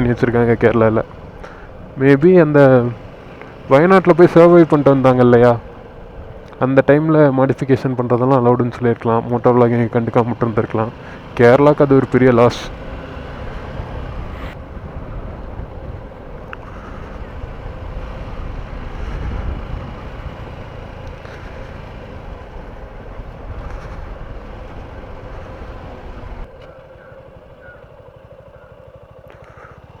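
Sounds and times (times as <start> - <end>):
motorcycle engine running: 0.0 - 30.0
wind rushing on microphone: 12.9 - 26.5.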